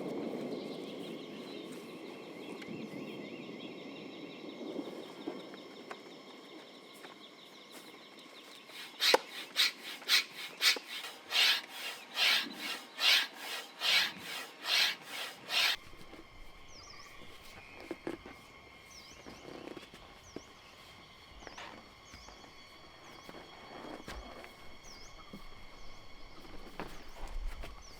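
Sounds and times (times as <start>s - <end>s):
hand saw cutting wood: 8.6s - 15.8s.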